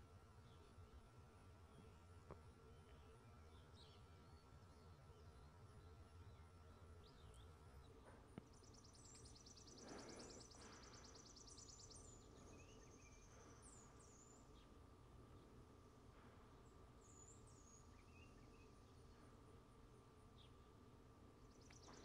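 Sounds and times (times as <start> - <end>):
birds chirping: 2.7 - 19.4, 21.4 - 22.0
rapid dry bird trill: 8.6 - 14.4.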